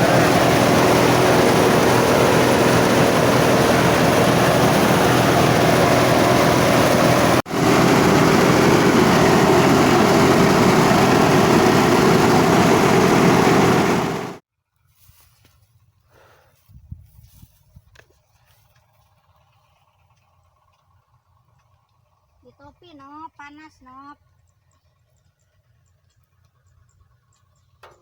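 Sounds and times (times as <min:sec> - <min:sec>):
threshing machine engine running: 0:00.0 - 0:14.4.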